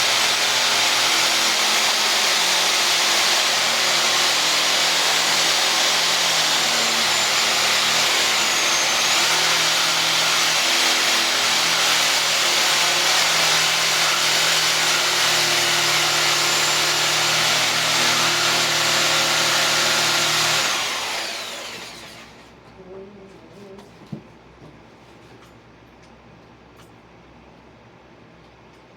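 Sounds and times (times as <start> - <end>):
reciprocating saw cutting wood: 0.0 - 22.4.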